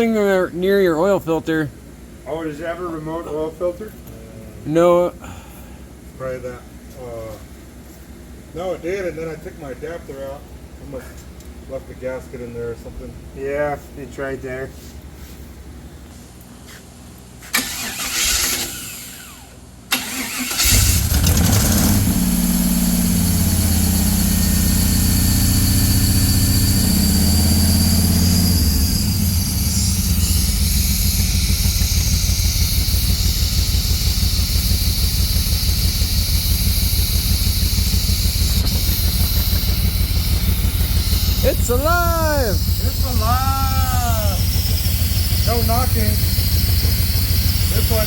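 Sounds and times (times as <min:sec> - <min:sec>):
engine starter cranking: 0:17.5 - 0:22.2, 0:33.0 - 0:48.0
car engine running and idling: 0:17.6 - 0:48.0.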